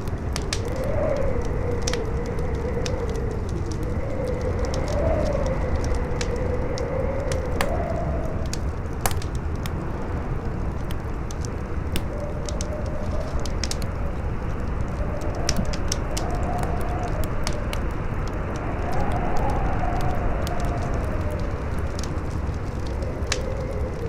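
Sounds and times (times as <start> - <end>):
campfire crackling and popping: 0.0 - 24.0
strong wind howling: 0.1 - 24.0.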